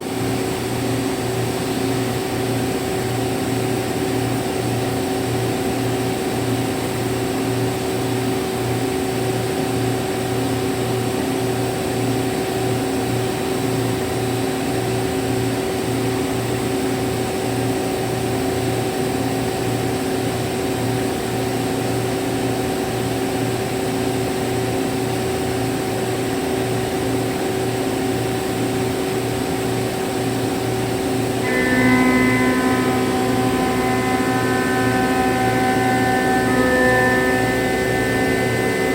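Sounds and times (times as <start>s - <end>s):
low pulsing throb: 31.4s - 38.9s
milling machine whine: 31.4s - 38.9s.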